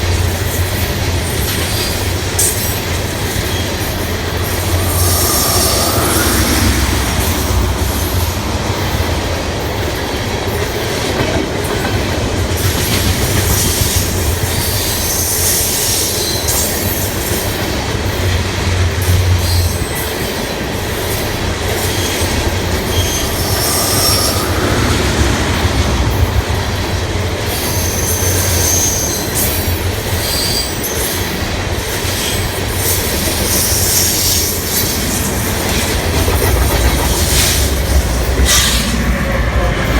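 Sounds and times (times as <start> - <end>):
freight train rumbling: 0.0 - 39.9
high-pitched wheel squeals: 1.4 - 8.7, 21.8 - 25.9
wheels clicking over rail joints: 9.7 - 19.9, 31.6 - 39.6.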